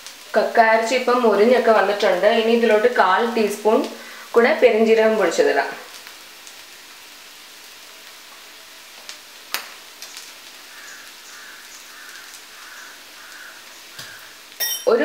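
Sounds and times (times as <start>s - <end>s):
clam meat sizzling in a pan: 0.0s - 15.0s
faint repeated high note: 14.6s - 14.9s.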